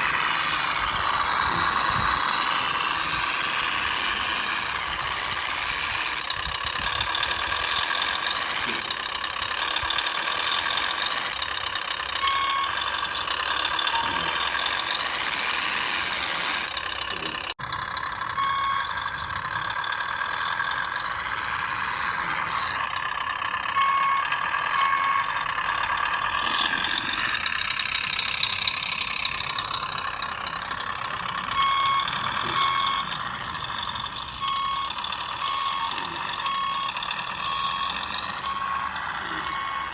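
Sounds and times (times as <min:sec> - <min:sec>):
electric drivetrain whining: 0:00.0 - 0:39.9
reversing beeps: 0:12.2 - 0:17.4, 0:18.3 - 0:19.1, 0:23.6 - 0:25.8, 0:29.3 - 0:39.9.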